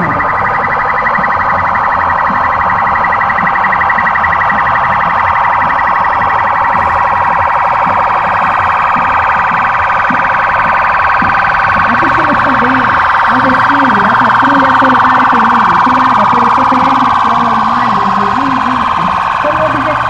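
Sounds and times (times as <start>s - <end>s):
police sirens warbling: 0.0s - 20.0s.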